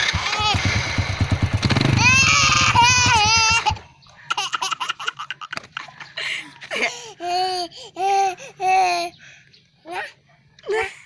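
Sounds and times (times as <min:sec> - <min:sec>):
motorcycle exhaust running: 0:00.0 - 0:04.1
child crying: 0:00.1 - 0:00.6, 0:02.0 - 0:03.8, 0:07.1 - 0:09.2
laughter: 0:04.2 - 0:06.9.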